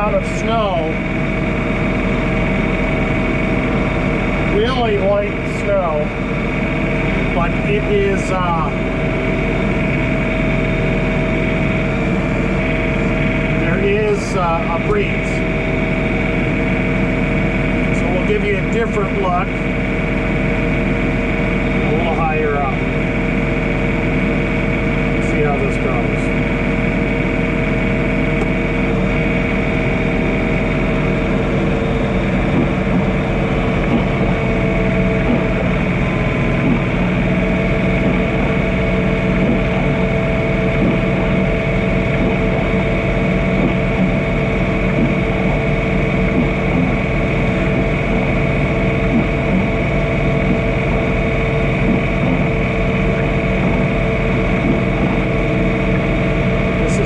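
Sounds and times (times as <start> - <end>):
steady whining tones: 0.0 - 57.0
tractor diesel engine running: 0.0 - 57.0.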